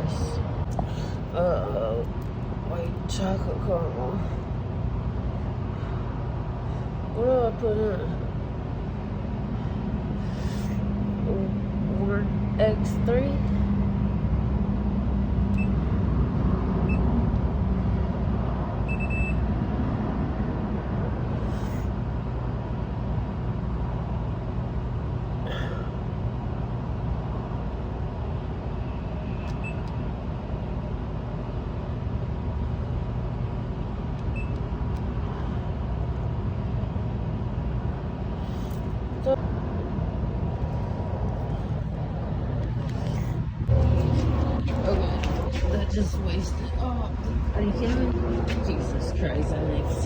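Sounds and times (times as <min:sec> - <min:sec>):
low machine hum: 0:00.0 - 0:50.0
coffee machine beeps: 0:15.6 - 0:15.8, 0:18.9 - 0:19.4, 0:29.5 - 0:29.9.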